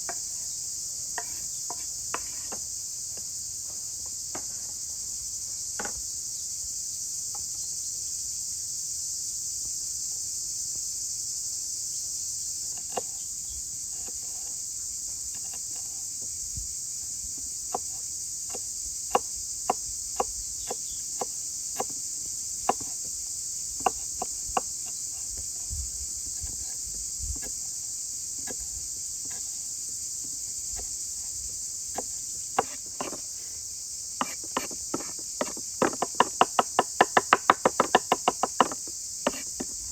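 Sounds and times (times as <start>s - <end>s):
crickets and insects chirping: 0.0s - 39.9s
sharp knocks: 34.2s - 39.8s.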